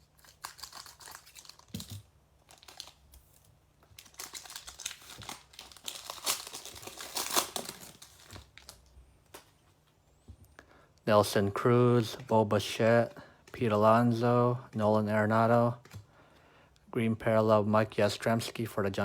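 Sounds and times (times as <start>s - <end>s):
plastic wrapper crinkling: 0.0s - 9.5s.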